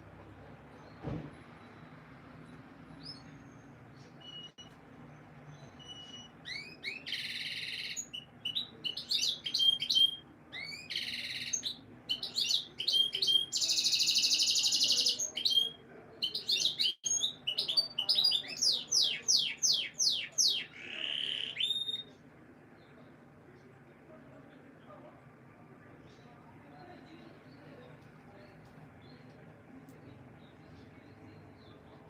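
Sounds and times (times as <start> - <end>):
canary singing trills and chirps: 2.8 - 22.2.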